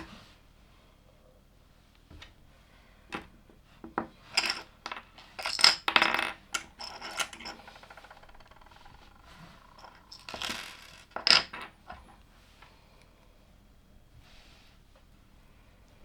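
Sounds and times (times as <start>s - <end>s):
plastic toy bricks clicking: 5.4s - 11.7s.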